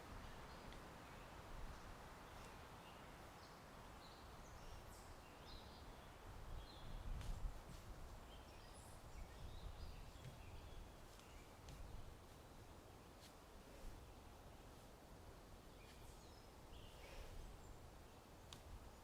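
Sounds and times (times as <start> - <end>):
low wind rumble: 0.0 - 19.0
faint bird chirps: 15.7 - 18.3.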